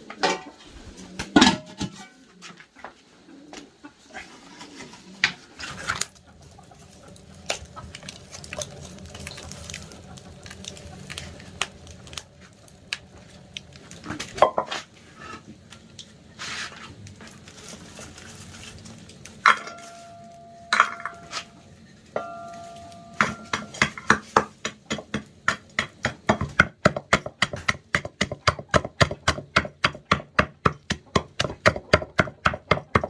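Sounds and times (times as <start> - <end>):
metal pots clattering: 0.1 - 0.7, 1.3 - 2.6, 19.4 - 24.4
ringing metal clanks: 19.5 - 21.6, 22.2 - 23.8.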